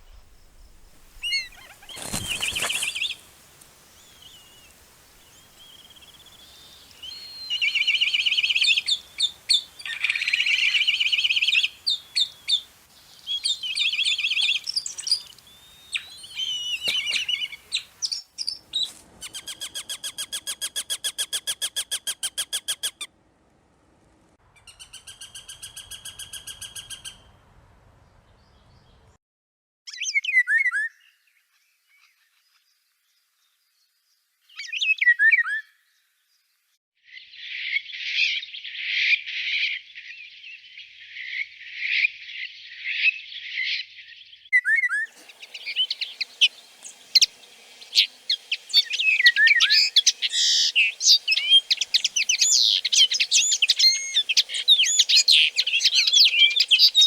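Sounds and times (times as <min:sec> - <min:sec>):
fast bird trills: 0:00.0 - 0:03.4, 0:45.0 - 0:57.0
birds singing and calling: 0:00.0 - 0:20.0, 0:39.6 - 0:57.0
background noise: 0:00.0 - 0:29.2.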